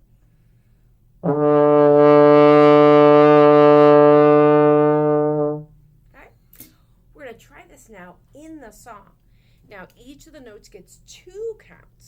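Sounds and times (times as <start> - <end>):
trombone holding low note: 1.2 - 5.8.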